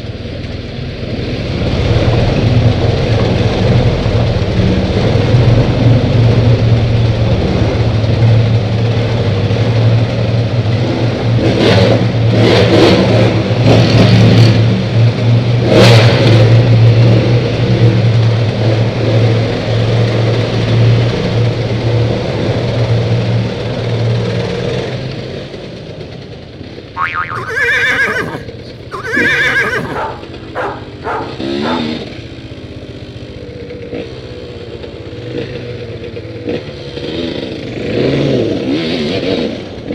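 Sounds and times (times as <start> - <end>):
dirt bike engines revving: 27.0 - 32.2.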